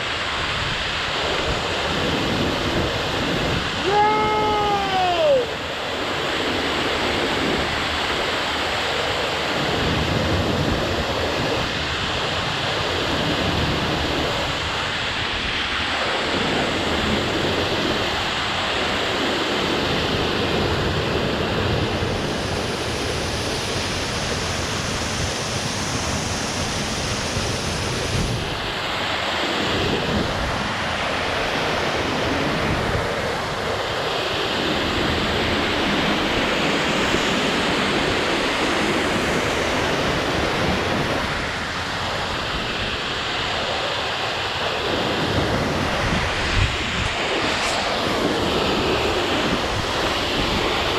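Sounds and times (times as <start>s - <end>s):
wind buffeting microphone: 0.0s - 50.9s
waterfall rushing: 3.6s - 6.8s.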